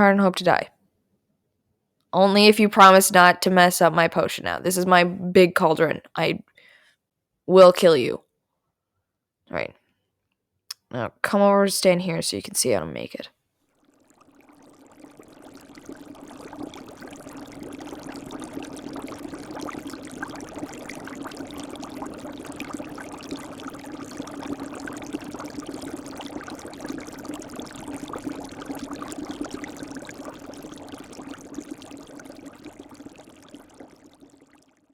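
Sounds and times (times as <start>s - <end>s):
water bubbling and pouring: 13.7s - 34.9s
small crackling pops: 13.8s - 34.9s.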